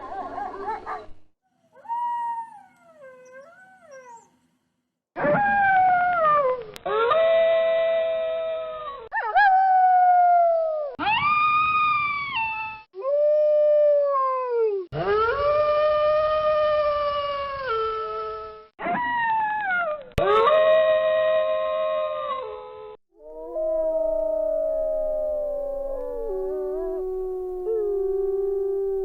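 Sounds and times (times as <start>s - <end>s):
wolves howling: 23.2s - 29.0s.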